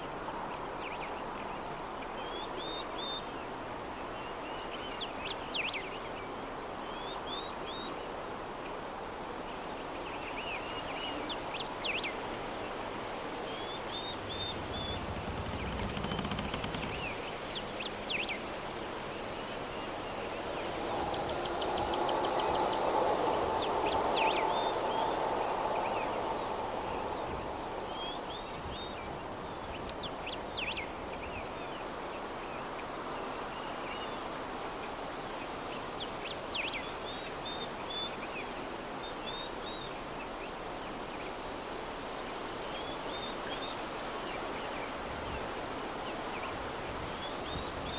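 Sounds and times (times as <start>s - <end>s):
soft breeze: 0.0s - 47.9s
small birds chirping: 10.6s - 18.5s.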